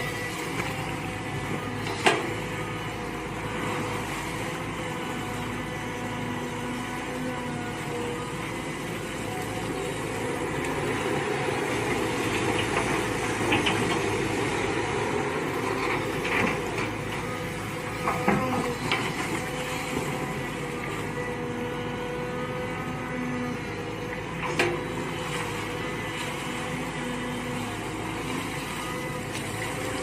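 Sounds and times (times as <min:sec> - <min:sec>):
excavator engine running: 0:00.0 - 0:30.0.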